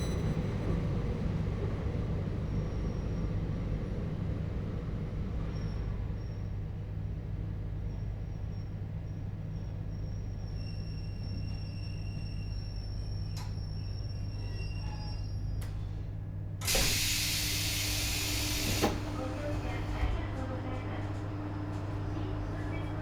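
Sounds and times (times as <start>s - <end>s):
train rolling rumble: 0.0s - 23.0s
faint brake squeals: 5.5s - 6.6s, 7.8s - 19.2s.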